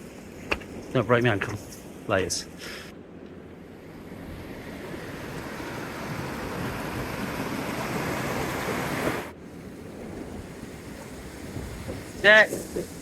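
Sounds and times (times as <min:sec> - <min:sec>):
waterfall rushing: 0:04.4 - 0:09.3.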